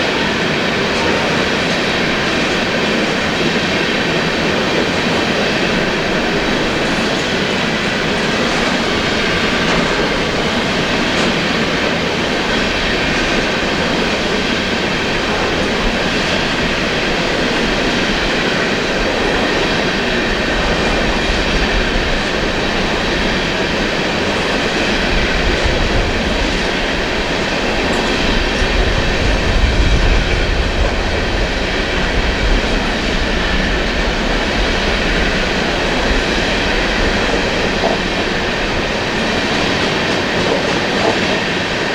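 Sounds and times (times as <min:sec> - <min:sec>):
train cars rumbling past: 0:00.0 - 0:41.9
wheels clacking over rail joints: 0:00.0 - 0:41.9.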